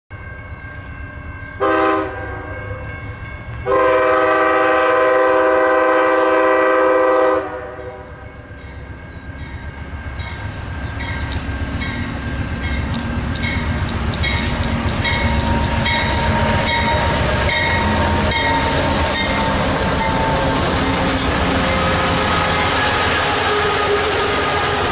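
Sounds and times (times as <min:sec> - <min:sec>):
train rumble passing: 0:00.1 - 0:24.9
locomotive horn blasts: 0:01.6 - 0:02.8, 0:03.6 - 0:08.2, 0:15.8 - 0:24.9
wheels clicking over rail joints: 0:11.1 - 0:22.0.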